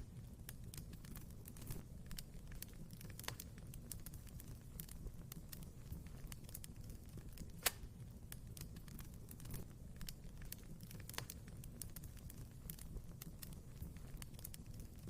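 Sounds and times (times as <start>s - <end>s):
fire crackling in a fireplace: 0.0s - 15.0s
fire popping: 0.0s - 15.0s.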